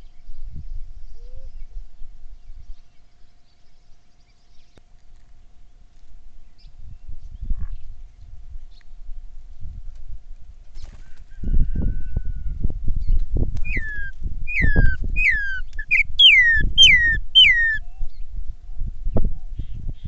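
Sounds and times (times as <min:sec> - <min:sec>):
bird whistling descending notes: 0:13.7 - 0:17.8.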